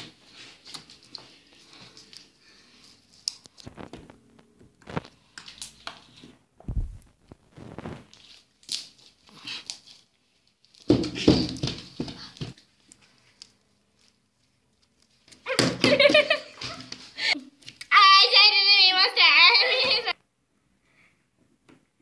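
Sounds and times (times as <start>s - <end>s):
low thumps: 6.6s - 7.2s.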